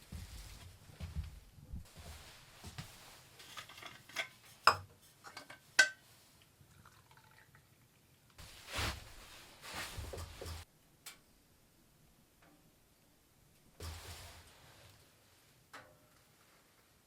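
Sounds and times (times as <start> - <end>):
cookware knocking and clinking: 3.7 - 6.0.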